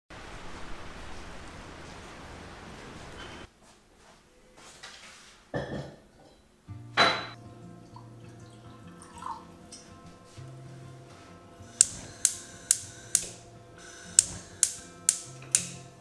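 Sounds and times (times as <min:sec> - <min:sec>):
kitchenware knocking: 0:05.6 - 0:06.0, 0:07.0 - 0:07.4
soft background music: 0:06.6 - 0:16.0.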